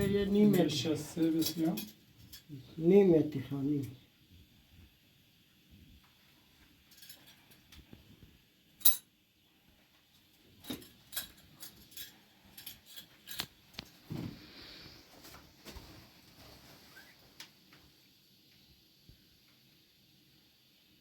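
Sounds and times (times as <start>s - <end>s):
small hard parts clinking: 0.0s - 2.6s, 6.8s - 7.9s, 8.8s - 9.1s, 10.6s - 14.0s.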